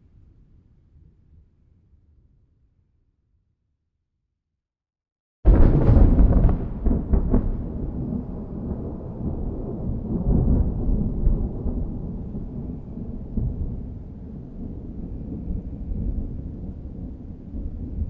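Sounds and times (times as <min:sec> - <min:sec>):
thunder clap and rumble: 0:05.5 - 0:18.0.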